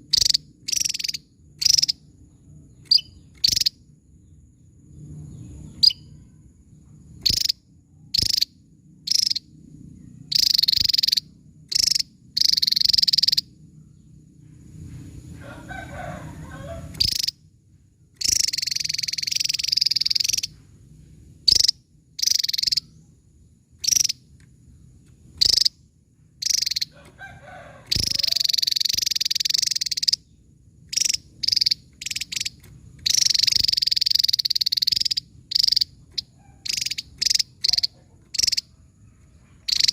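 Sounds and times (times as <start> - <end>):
bird calling in high bursts: 10.3 - 13.5, 15.8 - 17.4, 18.2 - 20.6, 21.5 - 23.0, 26.4 - 30.3, 30.9 - 38.7.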